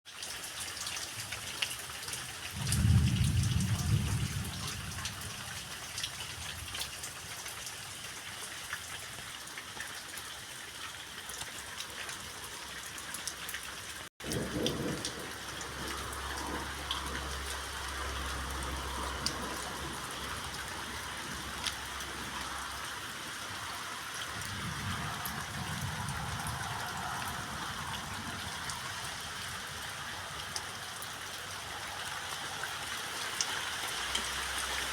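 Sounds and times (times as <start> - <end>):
rain falling: 0.1 - 34.9
low thunder rumble: 2.6 - 6.8, 14.2 - 20.0, 24.3 - 28.9
raindrop ticks: 13.0 - 22.8.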